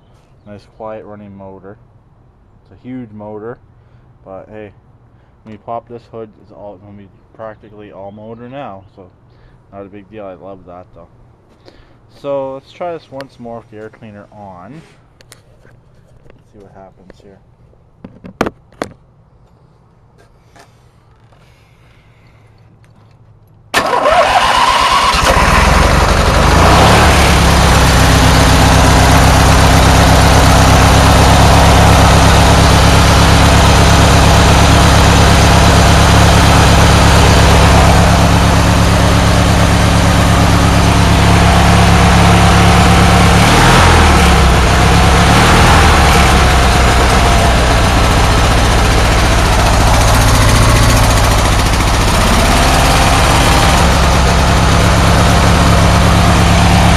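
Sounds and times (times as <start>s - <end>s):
riding mower engine running: 23.7s - 56.9s.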